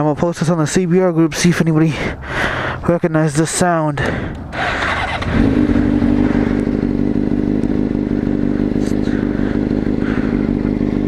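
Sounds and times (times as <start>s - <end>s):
motorcycle engine running: 4.0s - 11.0s.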